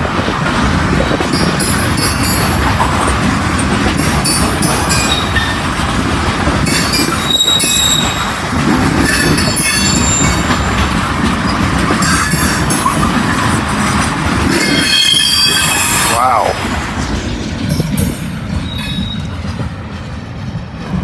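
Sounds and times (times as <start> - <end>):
freight train rumbling on rails: 0.0 - 21.0
high-pitched wheel squeals: 4.0 - 5.6, 6.7 - 8.4, 9.1 - 10.9, 14.6 - 16.2, 18.6 - 19.4.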